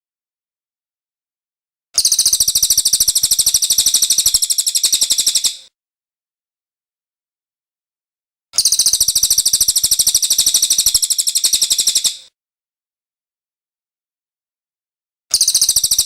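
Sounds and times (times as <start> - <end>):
high-pitched bird trill: 2.0 - 5.6, 8.6 - 12.2, 15.3 - 16.0.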